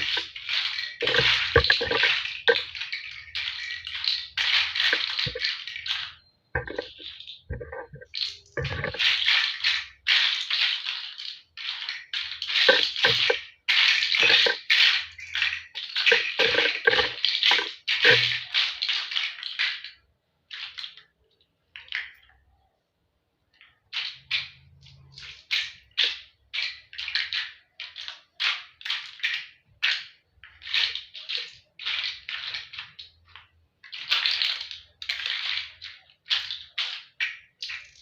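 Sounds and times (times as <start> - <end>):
plastic toy blocks clattering: 0.0 - 20.0, 23.8 - 38.0.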